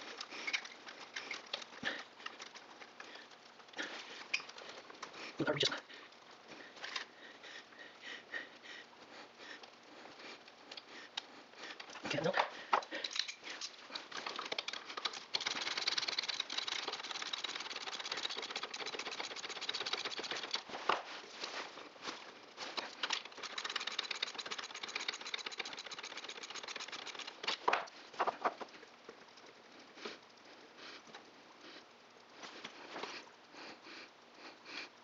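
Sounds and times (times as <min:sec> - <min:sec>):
ratchet wrench clicking: 0:14.2 - 0:20.7, 0:22.8 - 0:27.6.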